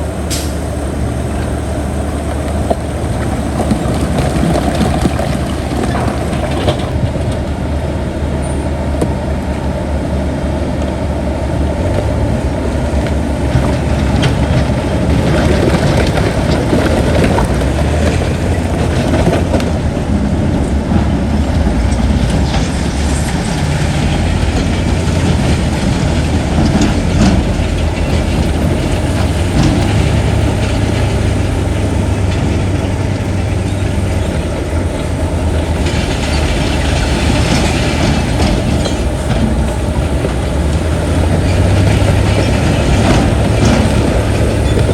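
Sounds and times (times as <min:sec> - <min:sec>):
heavy diesel machinery engine drone: 0:00.0 - 0:44.9
metallic clanks and knocks: 0:21.9 - 0:44.9.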